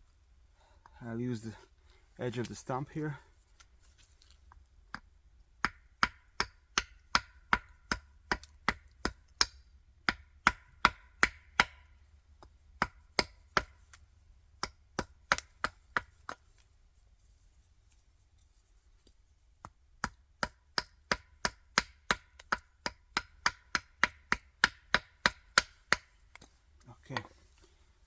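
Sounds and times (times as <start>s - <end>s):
hand axe chopping wood: 4.9s - 13.8s, 14.6s - 16.5s, 19.6s - 26.5s.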